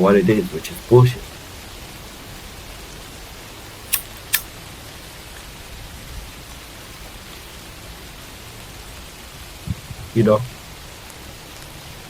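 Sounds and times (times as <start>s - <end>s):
steady hissing noise: 0.0s - 12.0s
sharp clicks: 3.9s - 4.5s.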